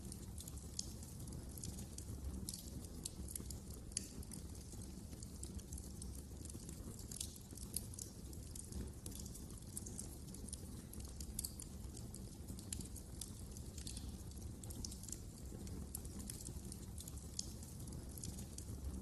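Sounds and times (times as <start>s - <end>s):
fire crackling pops and snaps: 0.0s - 19.0s.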